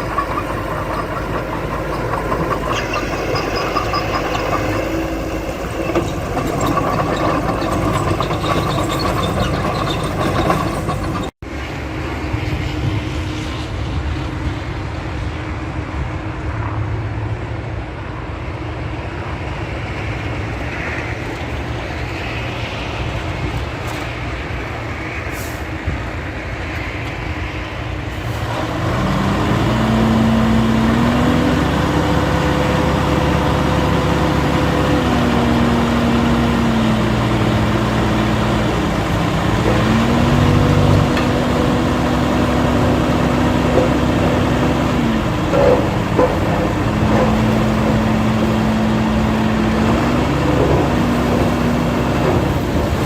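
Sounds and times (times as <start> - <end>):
diesel engine revving: 0.0 - 11.4, 28.2 - 53.0.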